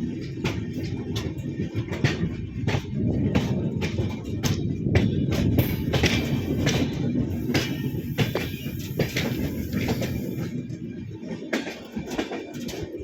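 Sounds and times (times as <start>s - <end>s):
train clanks and rattles: 0.0s - 13.0s
train rumbling: 0.0s - 13.0s.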